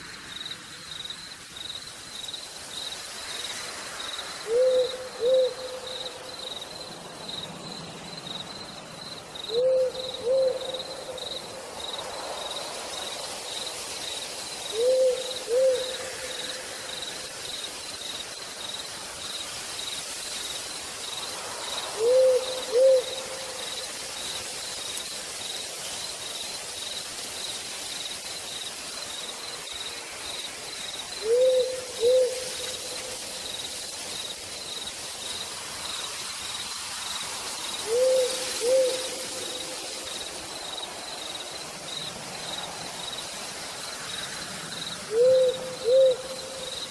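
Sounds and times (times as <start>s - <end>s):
night insects chirping: 0.0s - 46.9s
rain falling in a forest: 0.0s - 46.9s
owl hooting: 4.4s - 6.0s, 9.5s - 11.2s, 14.7s - 16.6s, 22.0s - 23.5s, 31.2s - 32.9s, 37.8s - 39.7s, 45.1s - 46.7s.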